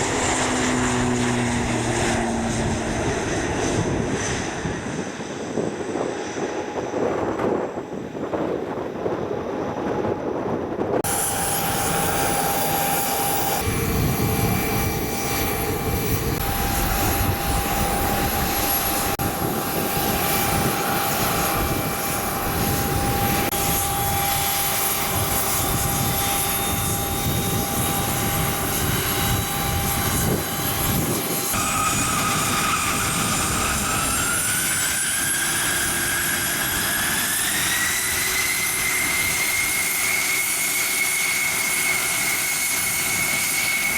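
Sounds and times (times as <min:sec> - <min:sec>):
aircraft turbine engines whining: 0:00.0 - 0:43.9
high whine rising in pitch: 0:11.0 - 0:43.9.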